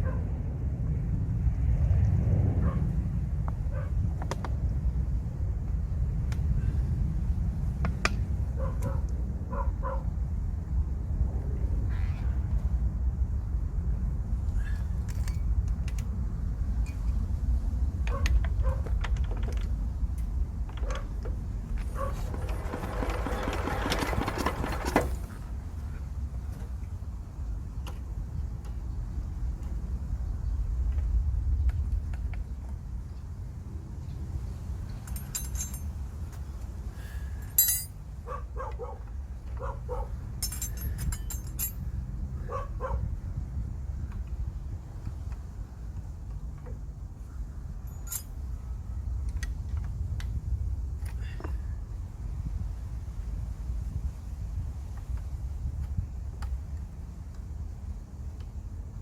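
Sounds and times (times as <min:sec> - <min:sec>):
dog barking: 0:00.0 - 0:00.2, 0:02.6 - 0:02.8, 0:03.7 - 0:04.0, 0:08.6 - 0:10.1, 0:18.1 - 0:18.9, 0:22.0 - 0:22.2, 0:38.2 - 0:39.0, 0:39.6 - 0:40.2, 0:42.5 - 0:43.0
metallic clinks: 0:35.0 - 0:36.0, 0:37.4 - 0:38.0, 0:40.4 - 0:41.8, 0:47.8 - 0:48.4.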